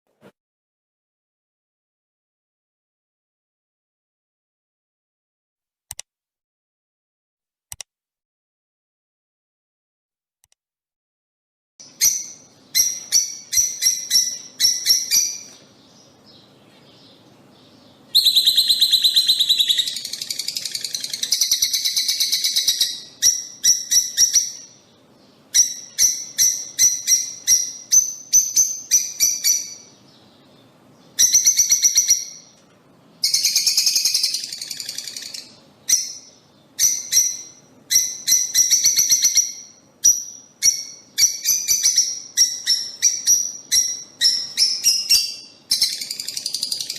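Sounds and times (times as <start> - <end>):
lovebirds chirping: 11.8 - 46.9.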